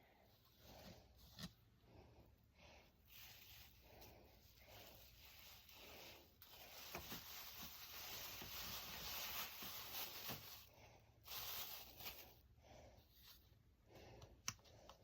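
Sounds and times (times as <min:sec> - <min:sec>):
faint rustling and rubbing: 0:03.0 - 0:12.4.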